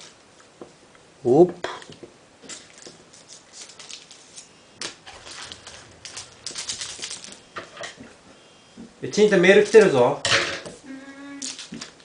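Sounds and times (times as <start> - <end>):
trading cards flicking and rustling: 2.4 - 8.1, 11.4 - 12.0.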